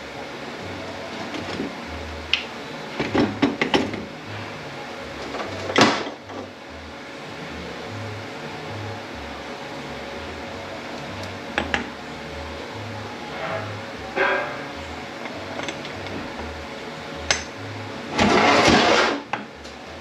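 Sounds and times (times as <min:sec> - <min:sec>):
steady low hum: 0:00.0 - 0:20.0
metal parts clicking and clinking: 0:15.2 - 0:16.5, 0:17.3 - 0:17.6.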